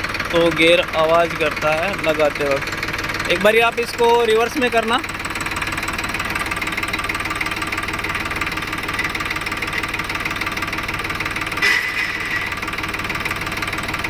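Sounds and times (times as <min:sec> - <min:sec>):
tractor diesel engine running: 0:00.0 - 0:14.0
gear grinding clash: 0:11.6 - 0:12.8.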